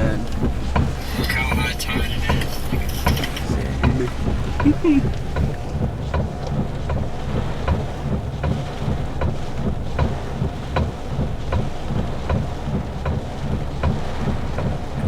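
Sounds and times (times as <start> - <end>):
engine and road rumble: 0.0 - 15.0
regular ticking: 0.0 - 15.0.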